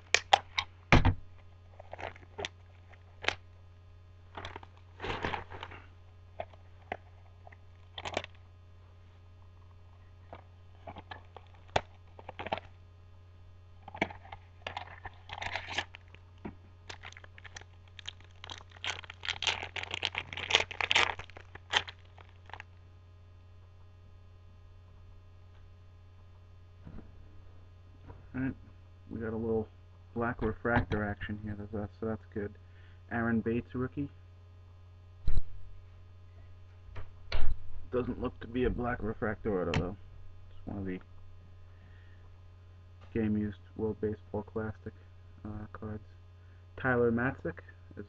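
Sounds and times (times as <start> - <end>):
faint low hum: 0.0 - 48.0
wrapper tearing and crinkling: 1.7 - 3.4, 7.8 - 8.4, 10.8 - 12.8, 13.8 - 16.2, 16.8 - 22.7
cards clicking and scraping: 13.8 - 16.2.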